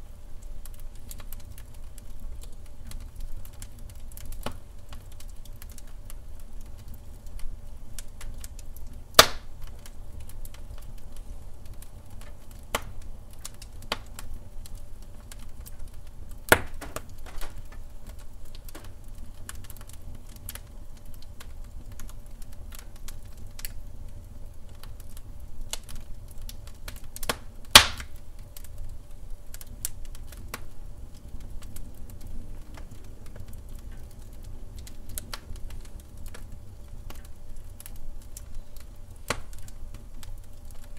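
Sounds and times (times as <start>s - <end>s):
wood fire crackling: 0.0s - 40.9s
sharp fire pops: 0.4s - 23.8s, 24.5s - 40.9s.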